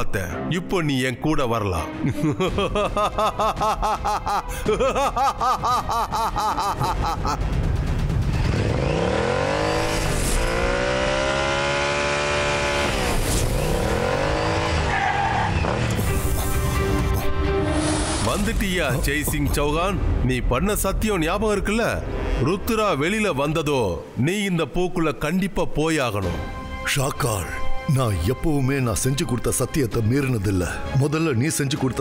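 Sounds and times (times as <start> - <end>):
cartoon motorcycle engine revving: 8.2 - 16.7.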